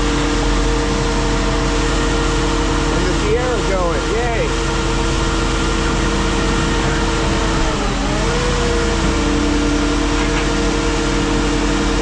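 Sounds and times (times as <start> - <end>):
car crusher engine running: 0.0 - 12.0.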